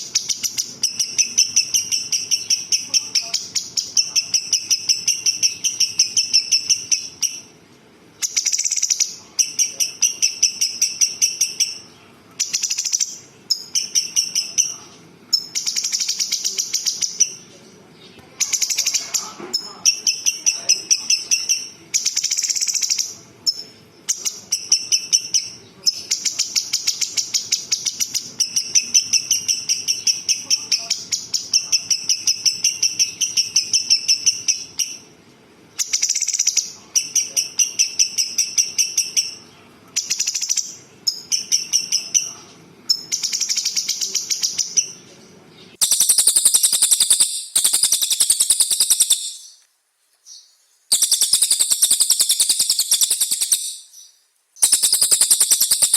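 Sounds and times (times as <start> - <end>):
songbird rattling trills: 0.0 - 7.6, 45.8 - 49.6, 50.9 - 54.0, 54.6 - 55.9.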